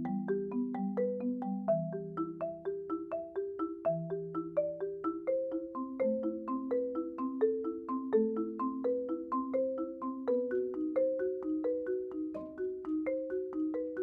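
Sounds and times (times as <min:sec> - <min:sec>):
marimba played with mallets: 0:00.0 - 0:14.0.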